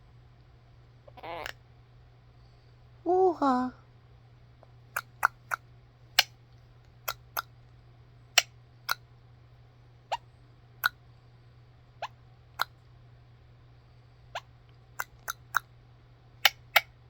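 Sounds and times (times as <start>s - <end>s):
parrot making sharp clicks: 4.9s - 5.6s, 7.1s - 7.5s, 15.0s - 15.7s, 16.4s - 16.9s.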